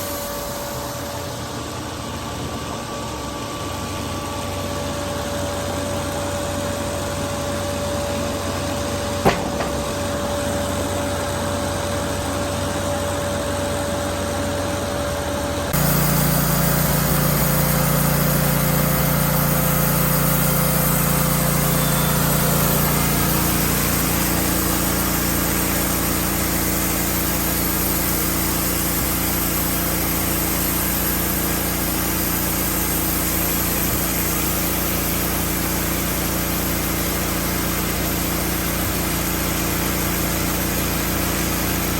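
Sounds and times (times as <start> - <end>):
band sawmill cutting wood: 5.9 - 14.6, 15.5 - 41.9
sharp click: 9.2 - 10.3.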